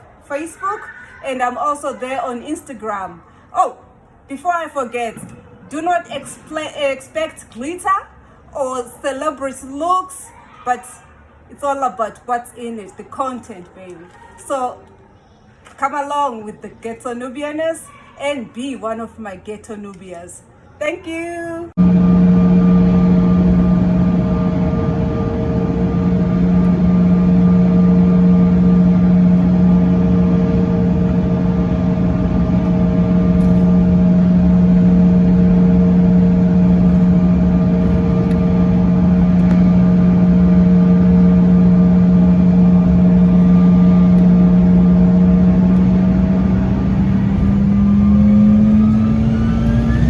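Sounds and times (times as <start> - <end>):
vehicle engine drone: 21.7 - 50.0.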